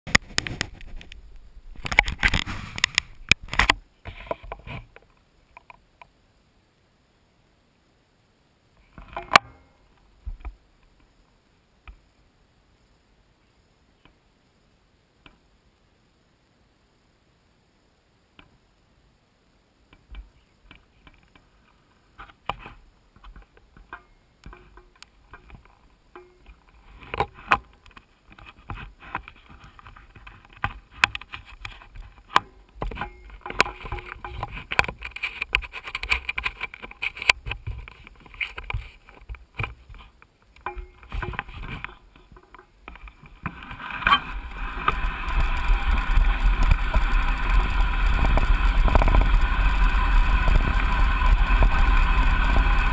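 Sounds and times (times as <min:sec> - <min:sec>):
wind and tyre noise: 0:00.1 - 0:06.7, 0:17.7 - 0:52.9
bike rattles and knocks: 0:22.2 - 0:52.9.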